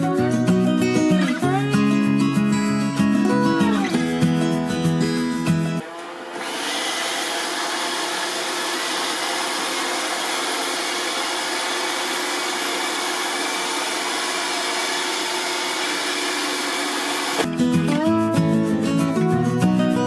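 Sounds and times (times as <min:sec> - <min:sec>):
robot vacuum whirring: 0:05.8 - 0:17.5.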